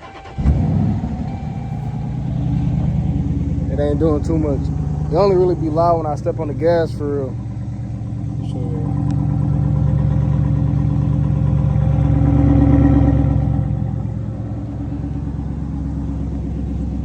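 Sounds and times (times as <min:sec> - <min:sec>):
car engine and exhaust drone: 0:00.0 - 0:17.0.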